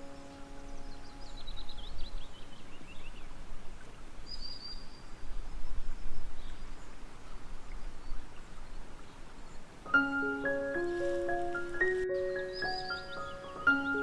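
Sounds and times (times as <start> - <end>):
bird chirps: 0.0 - 3.3, 9.9 - 14.0.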